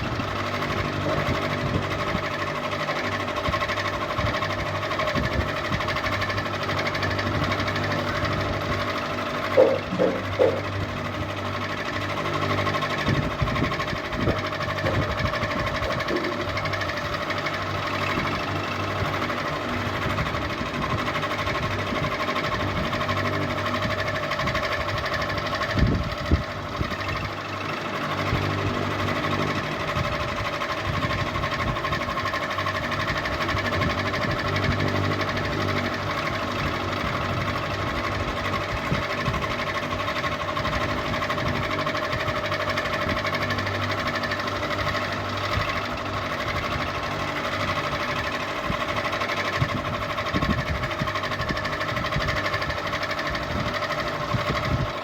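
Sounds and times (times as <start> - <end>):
ceiling fan running: 0.0 - 55.0
short knocks: 9.5 - 10.7.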